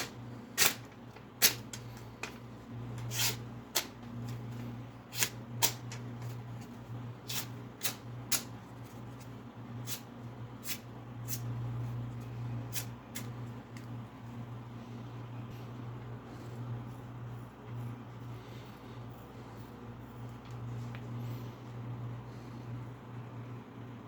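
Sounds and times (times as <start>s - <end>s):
low steady hum: 0.0s - 24.0s
knife blade strokes: 3.0s - 3.9s, 7.3s - 8.5s.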